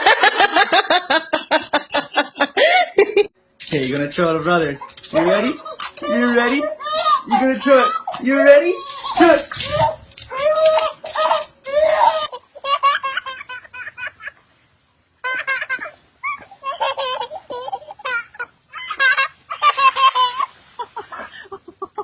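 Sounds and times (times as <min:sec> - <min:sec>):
young child laughing: 0:04.8 - 0:14.4, 0:15.2 - 0:22.0.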